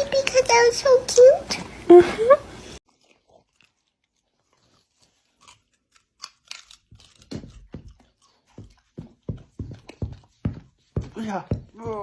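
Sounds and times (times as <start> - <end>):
chewing crunches: 2.8 - 10.9.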